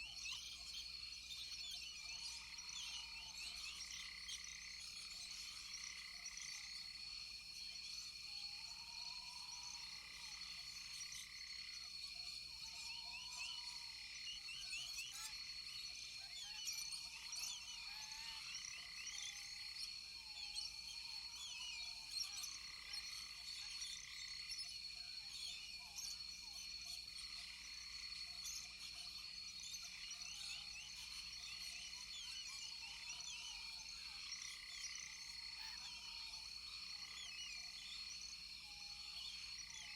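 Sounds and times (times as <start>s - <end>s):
frogs chirping: 0.1s - 39.9s.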